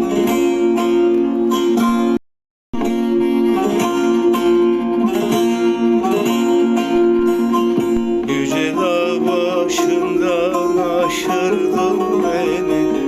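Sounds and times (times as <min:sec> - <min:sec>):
plucked string instrument melody: 0:00.0 - 0:02.2, 0:02.8 - 0:13.0.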